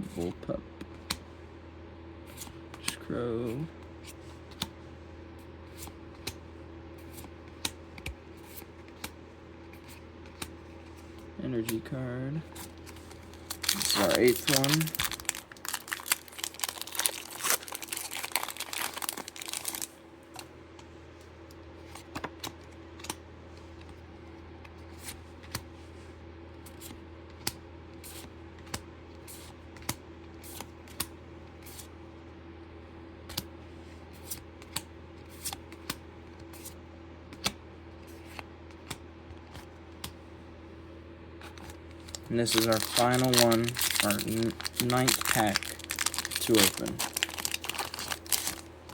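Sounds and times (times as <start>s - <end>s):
cards clicking and tapping: 7.2s - 11.9s, 22.0s - 23.2s
wrapper crinkling and tearing: 12.8s - 20.0s, 42.0s - 48.9s.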